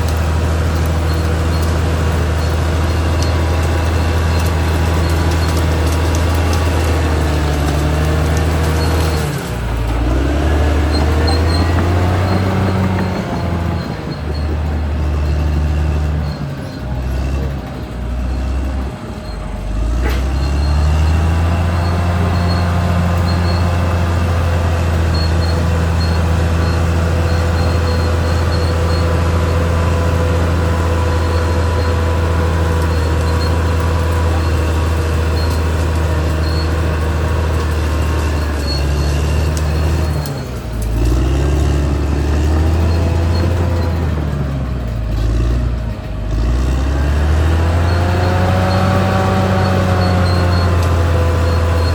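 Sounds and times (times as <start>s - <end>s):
bulldozer diesel engine running: 0.0s - 51.9s.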